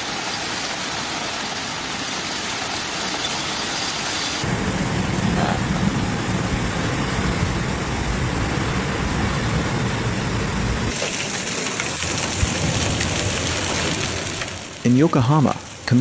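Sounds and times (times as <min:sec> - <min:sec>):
heavy rain pouring: 0:00.0 - 0:16.0
deep rumble: 0:04.4 - 0:11.0.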